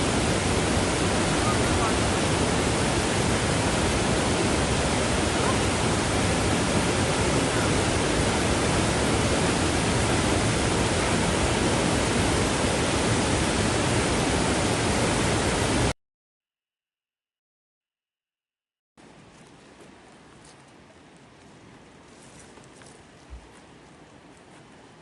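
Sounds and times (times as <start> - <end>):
rushing water: 0.0 - 15.9.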